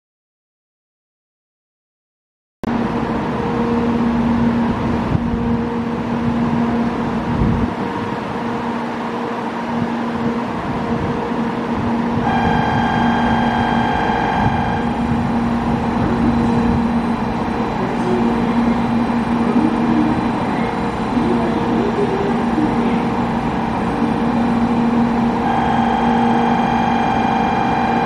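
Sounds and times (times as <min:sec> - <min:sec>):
train equipment drone: 0:02.7 - 0:28.0
low hum: 0:11.9 - 0:28.0
electronic tone: 0:12.2 - 0:17.1, 0:24.3 - 0:28.0.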